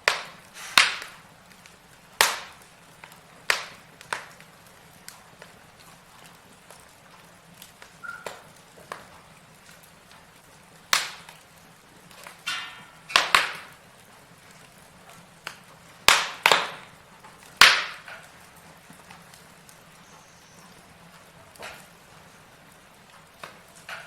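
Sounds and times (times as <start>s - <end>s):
faint steady hiss: 0.0s - 24.0s
logs crackling and popping: 0.0s - 24.0s.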